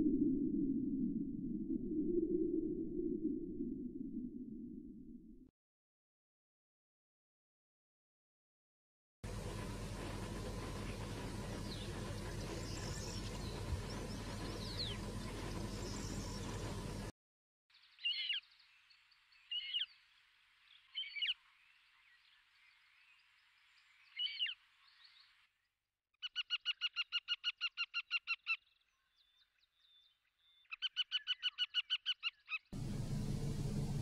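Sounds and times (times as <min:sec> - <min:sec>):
bird chirping: 0:10.6 - 0:17.0, 0:17.8 - 0:25.4, 0:26.2 - 0:32.7.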